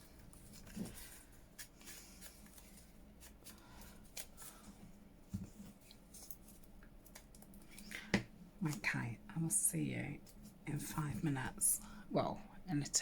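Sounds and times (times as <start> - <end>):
paper rustling and clicking: 5.5 - 8.1.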